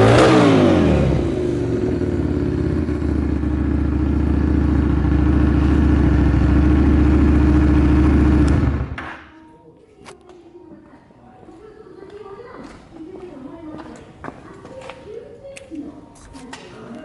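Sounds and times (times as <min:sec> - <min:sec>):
motorcycle engine idling: 0:00.0 - 0:09.1.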